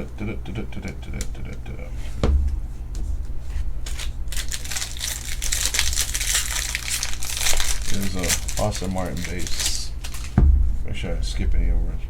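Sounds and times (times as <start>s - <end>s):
low hum: 0.0s - 12.0s
foil wrapper crinkling and tearing: 3.8s - 10.4s.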